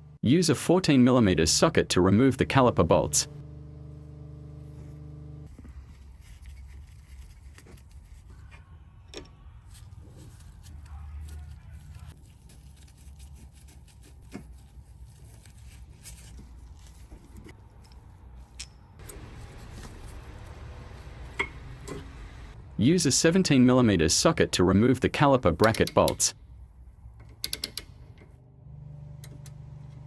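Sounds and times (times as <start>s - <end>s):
low steady hum: 0.0s - 30.0s
socket wrench metallic clicks: 27.2s - 28.0s.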